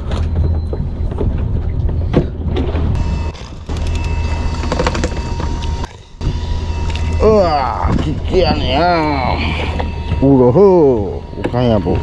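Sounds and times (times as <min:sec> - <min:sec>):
boat engine humming: 0:00.0 - 0:12.0
steady high-pitched tone: 0:03.0 - 0:12.0.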